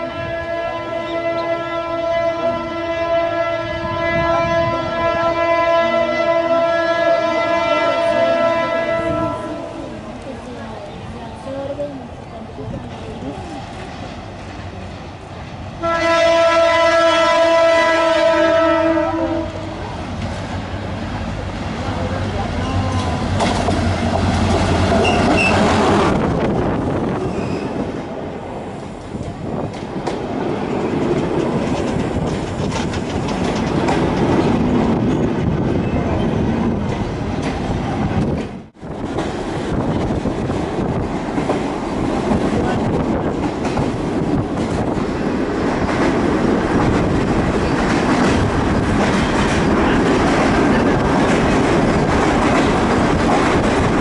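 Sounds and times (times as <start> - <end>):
diesel locomotive engine humming: 0.0 - 54.0
train wheels clattering on rails: 22.4 - 27.9, 28.7 - 54.0.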